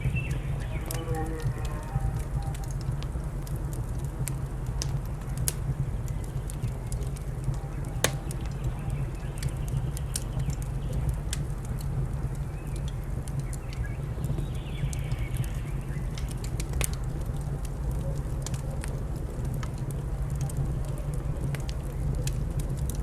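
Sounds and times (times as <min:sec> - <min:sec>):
wood fire crackling and popping: 0:08.0 - 0:08.6.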